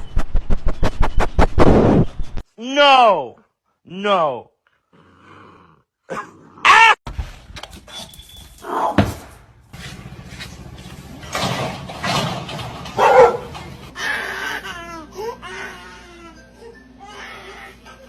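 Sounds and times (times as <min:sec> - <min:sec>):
dog barking: 0:13.0 - 0:13.5.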